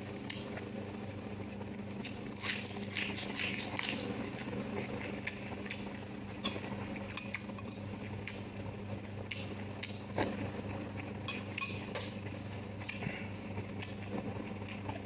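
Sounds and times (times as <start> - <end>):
eating sounds: 12.8 - 15.0.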